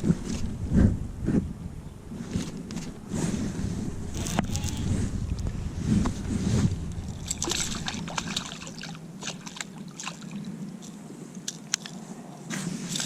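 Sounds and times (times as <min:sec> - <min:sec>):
wind rumble on microphone: 0:00.0 - 0:13.0
light water splashes: 0:07.0 - 0:12.0.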